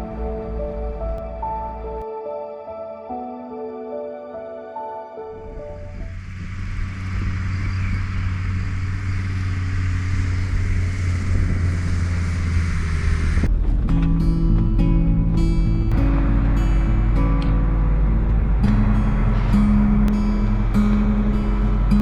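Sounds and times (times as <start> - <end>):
diesel engine driving: 0.0 - 2.0, 5.4 - 22.0
background music: 0.0 - 7.0, 13.5 - 22.0.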